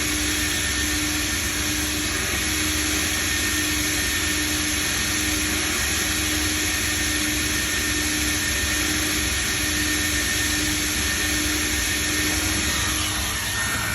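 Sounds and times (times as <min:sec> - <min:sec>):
faint high whine: 0:00.0 - 0:13.9
car wash machinery rushing: 0:11.1 - 0:13.9.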